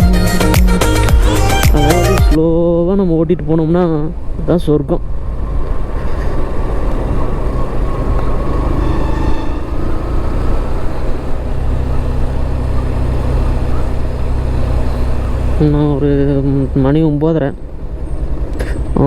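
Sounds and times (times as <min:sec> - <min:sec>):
road noise: 0:00.0 - 0:19.0
wind noise: 0:02.4 - 0:12.1
motorcycle engine running: 0:05.3 - 0:19.0.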